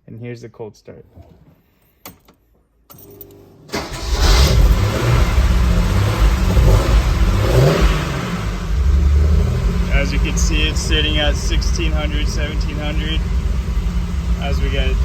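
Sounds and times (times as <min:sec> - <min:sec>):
car engine cranking and idling: 0:03.2 - 0:15.0.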